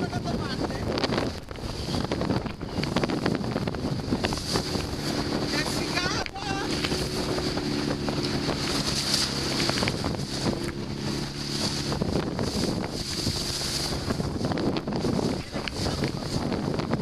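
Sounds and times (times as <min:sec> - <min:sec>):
water rushing around boat: 0:00.0 - 0:17.0
wind buffeting microphone: 0:00.0 - 0:17.0
steady low drone: 0:00.9 - 0:17.0.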